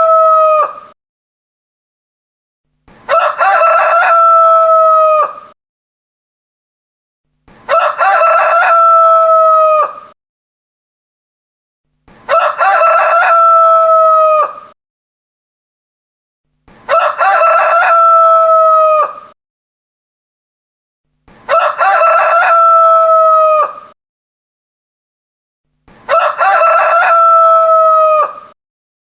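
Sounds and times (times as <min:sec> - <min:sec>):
rooster crowing: 0:00.0 - 0:00.8, 0:03.1 - 0:05.5, 0:07.7 - 0:10.1, 0:12.3 - 0:14.7, 0:16.9 - 0:19.4, 0:21.5 - 0:23.9, 0:26.1 - 0:28.6.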